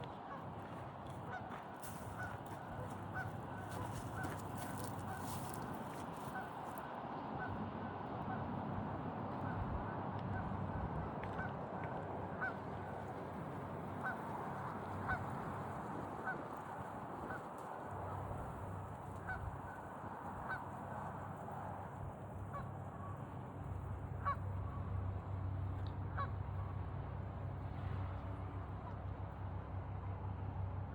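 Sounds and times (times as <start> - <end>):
geese honking: 1.3 - 6.6, 12.3 - 13.2, 13.9 - 17.5, 19.1 - 21.1, 24.2 - 24.9, 26.1 - 26.4.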